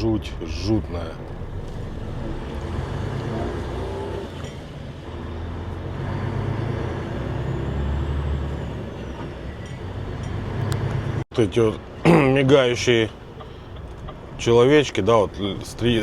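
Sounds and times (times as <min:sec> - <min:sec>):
truck diesel engine drone: 0:00.0 - 0:11.3
tyre and road noise: 0:00.0 - 0:16.0.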